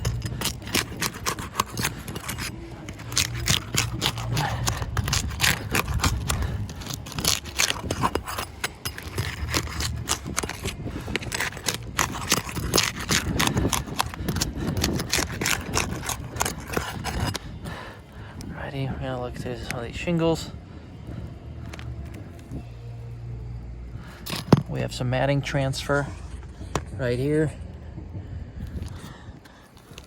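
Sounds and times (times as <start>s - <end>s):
pry bar scraping shingles: 0.0s - 17.9s
low steady rumble: 0.0s - 29.6s.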